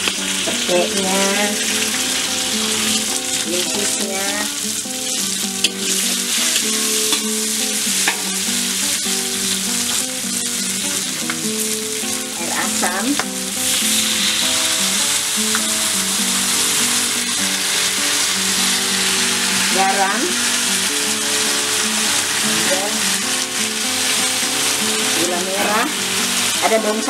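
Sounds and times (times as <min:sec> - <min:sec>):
vegetables sizzling in hot oil: 0:00.0 - 0:27.0
metal spatula stirring: 0:05.1 - 0:07.4.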